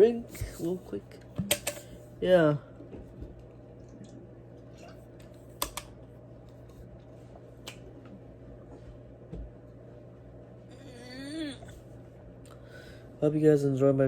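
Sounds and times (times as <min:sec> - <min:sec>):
steady low hum: 0:00.0 - 0:14.0
drink handling clicks: 0:01.4 - 0:01.9.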